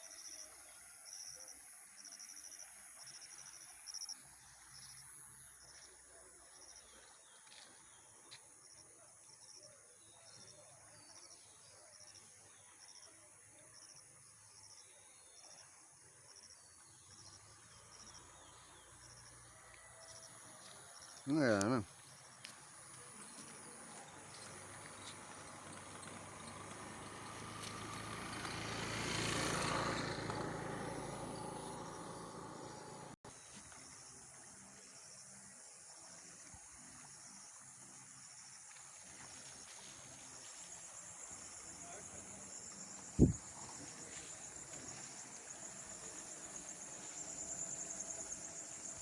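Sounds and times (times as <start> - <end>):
faint insect chirping: 0.0 - 49.0
motor vehicle passing: 23.8 - 33.2, 40.9 - 49.0.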